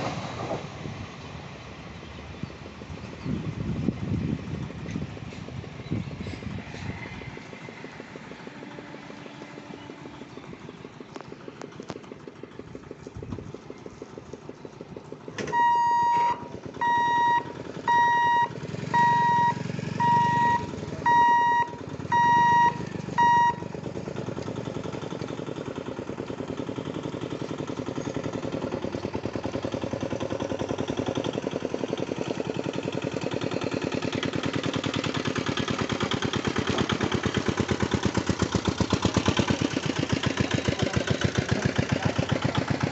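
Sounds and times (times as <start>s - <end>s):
rumbling pulsing train noise: 0.0s - 15.6s
electronic alarm beeping: 15.5s - 23.6s.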